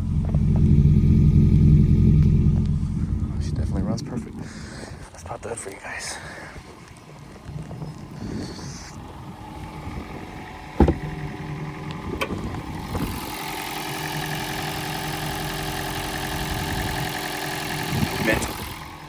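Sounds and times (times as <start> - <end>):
car engine idling: 0.0 - 19.0
sharp thump: 10.8 - 11.1.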